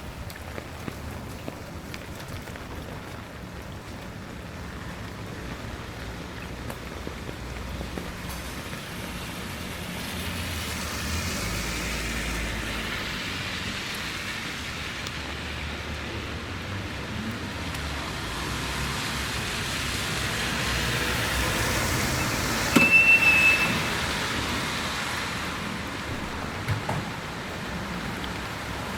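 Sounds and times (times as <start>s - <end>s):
tyres hissing on wet road: 0.0s - 28.9s
short high-pitched beep: 22.7s - 23.9s.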